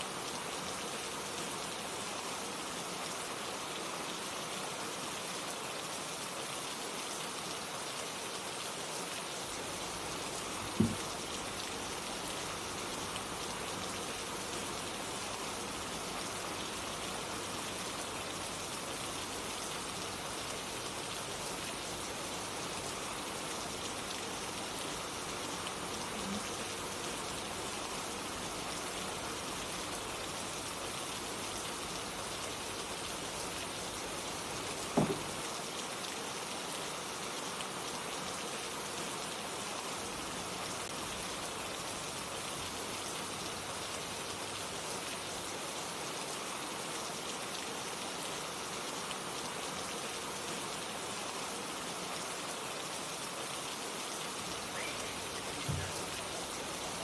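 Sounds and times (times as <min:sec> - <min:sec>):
steady rain falling: 0:00.0 - 0:57.0
sharp knock: 0:10.8 - 0:11.0, 0:35.0 - 0:35.4.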